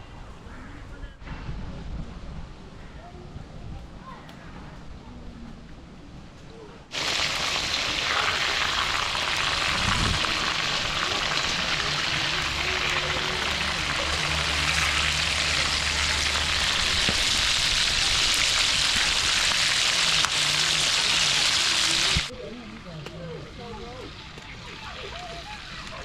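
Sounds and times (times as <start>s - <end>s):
food sizzling in hot oil: 6.9s - 22.3s.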